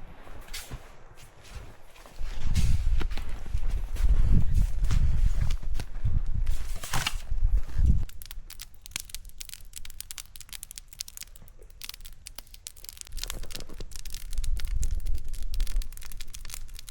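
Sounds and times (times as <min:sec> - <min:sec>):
campfire crackling and popping: 0:07.8 - 0:16.9.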